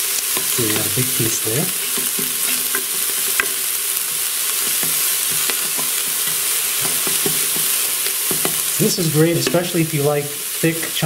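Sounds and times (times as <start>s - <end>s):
onions sizzling in butter: 0.0s - 11.0s
spatula tapping and scraping pot: 1.8s - 9.7s.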